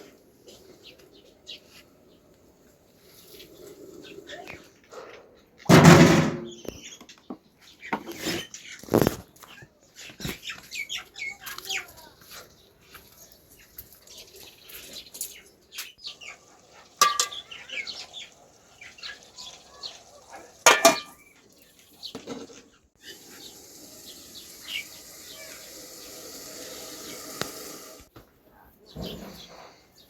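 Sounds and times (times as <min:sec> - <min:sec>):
metal pots and dishes clattering: 0:05.7 - 0:06.6, 0:17.0 - 0:17.6, 0:20.6 - 0:21.3.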